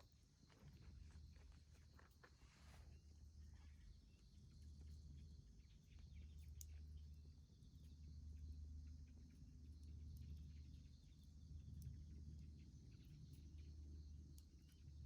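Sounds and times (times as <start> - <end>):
faint ticks: 3.7 - 15.0.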